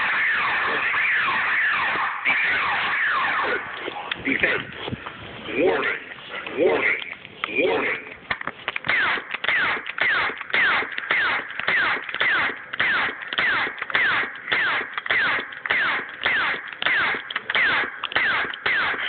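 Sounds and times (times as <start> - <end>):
laser tag gun zaps: 0.0 - 4.2, 8.9 - 19.0.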